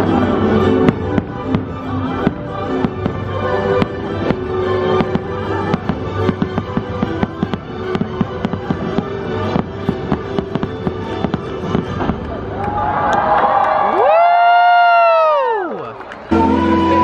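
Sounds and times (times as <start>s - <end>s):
fireworks show music: 0.0s - 12.6s, 16.3s - 17.0s
fireworks bangs: 0.0s - 12.8s.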